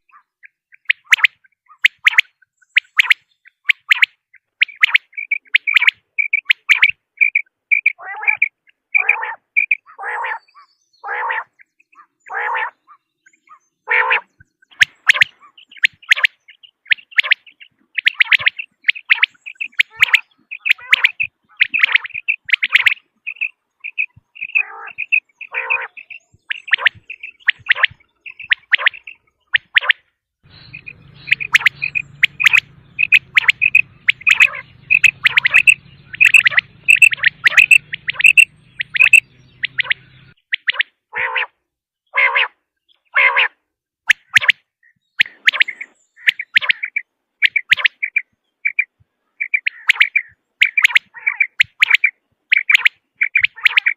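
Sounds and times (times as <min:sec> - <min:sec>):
quail calling: 0:00.0 - 0:44.6, 0:45.2 - 0:53.9
faint low hum: 0:30.5 - 0:40.4.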